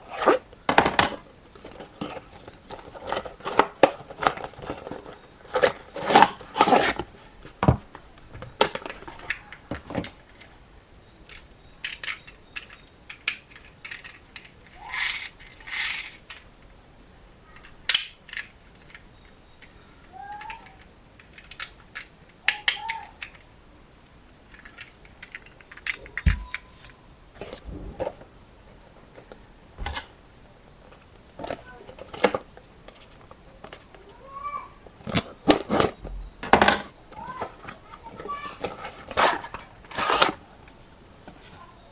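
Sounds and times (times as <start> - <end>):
toy parts clicking and knocking: 11.3 - 16.5, 17.6 - 23.5, 24.5 - 26.7.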